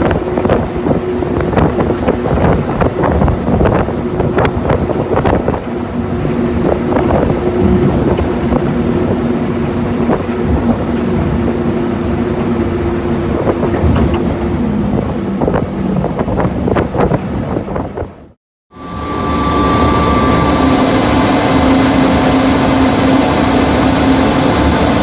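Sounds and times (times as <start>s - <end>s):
diesel locomotive engine drone: 0.0s - 25.0s.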